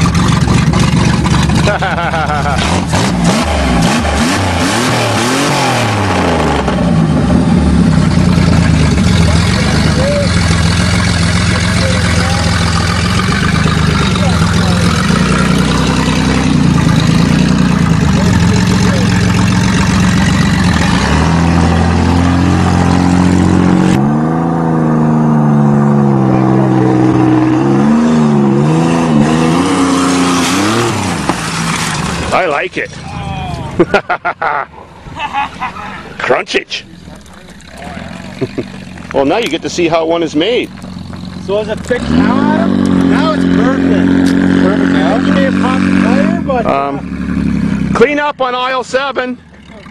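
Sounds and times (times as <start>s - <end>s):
car engine revving down and idling: 0.0s - 49.9s
tyres on gravel: 30.0s - 33.8s, 34.9s - 46.3s.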